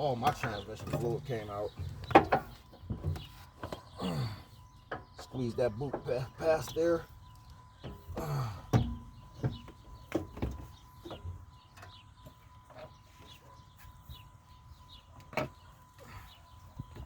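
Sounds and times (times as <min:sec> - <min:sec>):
metal knocks and clunks: 0:00.2 - 0:03.8, 0:07.8 - 0:11.9.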